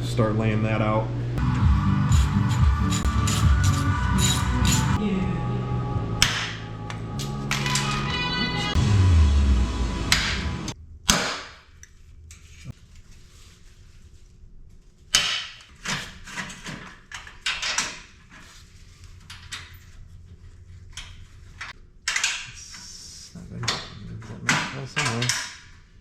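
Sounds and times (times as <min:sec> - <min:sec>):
background music with heavy bass: 0:01.4 - 0:10.8
metal tools knocking and scraping: 0:02.4 - 0:05.0.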